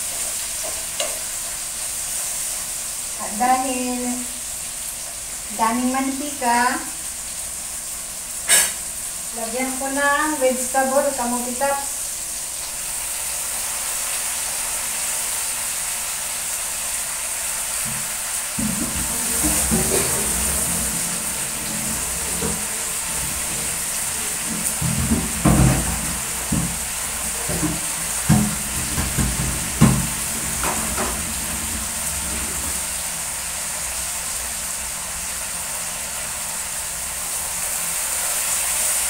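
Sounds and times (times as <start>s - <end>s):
food sizzling in oil: 0.0s - 39.0s
dull knocks: 17.9s - 32.9s.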